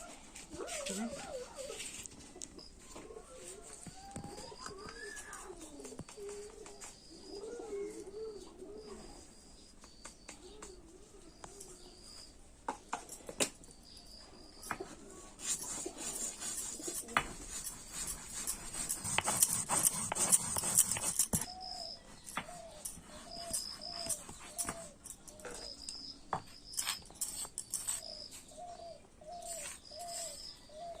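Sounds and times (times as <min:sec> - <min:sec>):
doves cooing: 0:00.5 - 0:09.4.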